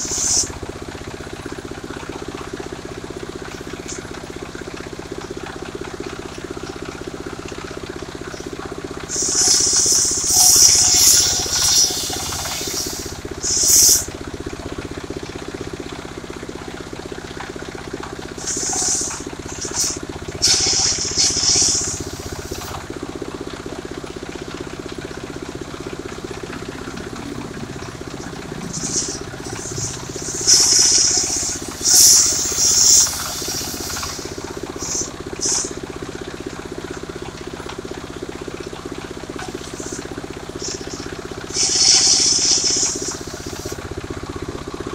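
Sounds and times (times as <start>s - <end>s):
saw blade cutting wood hiss: 0.0s - 0.5s, 9.1s - 14.1s, 18.4s - 22.8s, 28.6s - 35.8s, 40.6s - 43.8s
sawmill engine running: 0.0s - 44.9s.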